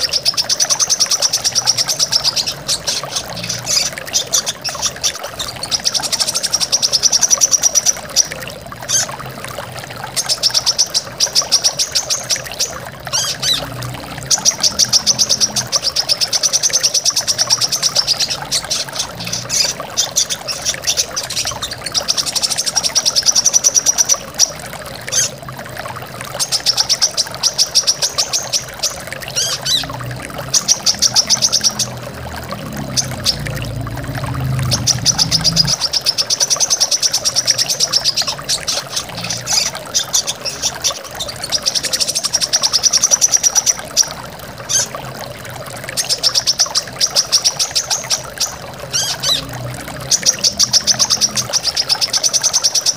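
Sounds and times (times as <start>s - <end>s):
bird trilling: 10.2s - 13.7s, 26.4s - 32.0s
waterfall rushing: 28.0s - 52.9s.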